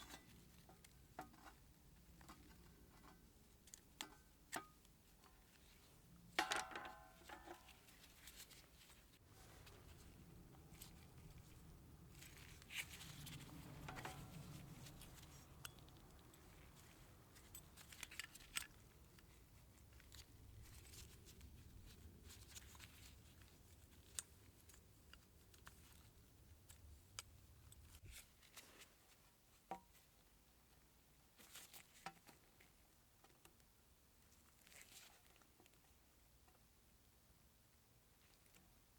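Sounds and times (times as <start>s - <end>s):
small parts clicking and rustling: 0.0s - 29.2s
quiet low hum: 0.0s - 38.9s.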